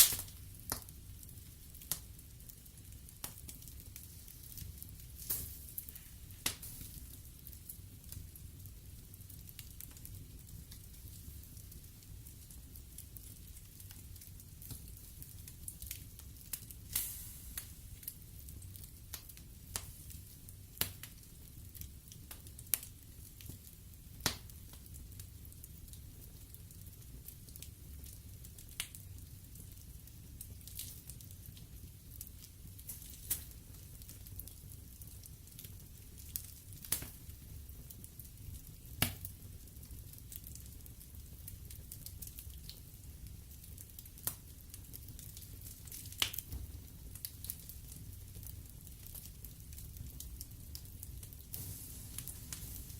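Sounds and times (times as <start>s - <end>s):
sharp pops: 0.0s - 0.3s
fire crackling and popping: 0.0s - 52.9s.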